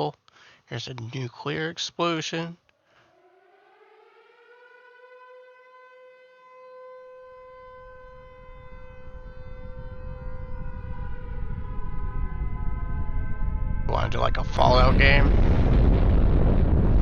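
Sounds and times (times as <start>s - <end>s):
air-raid siren wailing: 2.8s - 17.0s
low rumble: 7.8s - 17.0s.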